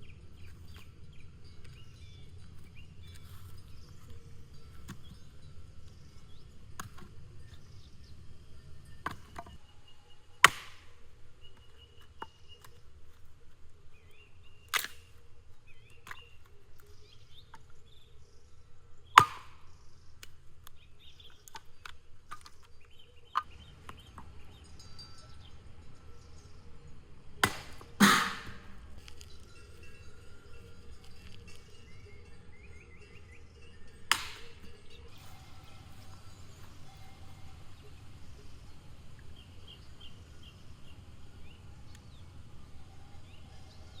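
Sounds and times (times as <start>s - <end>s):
faint outdoor ambience: 0.0s - 44.0s
sharp knocks: 27.4s - 28.8s.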